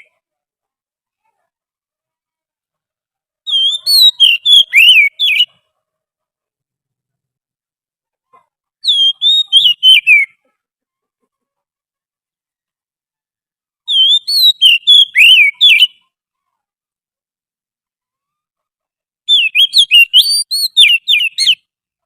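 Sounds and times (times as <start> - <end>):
bird whistling song: 3.5 - 5.5, 8.8 - 10.4, 13.9 - 16.0, 19.3 - 21.7.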